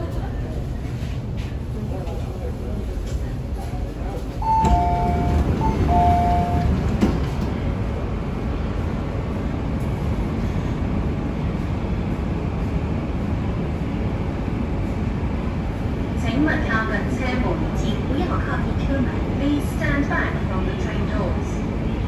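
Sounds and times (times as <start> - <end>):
train wheels rumbling: 0.0 - 22.0.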